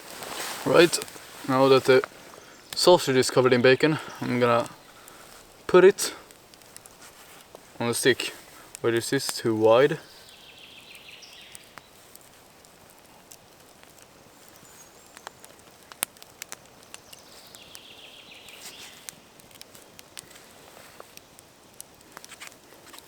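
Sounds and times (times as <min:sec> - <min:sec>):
soft hiss: 0:00.0 - 0:23.0
small clicks and ticks: 0:01.8 - 0:23.0.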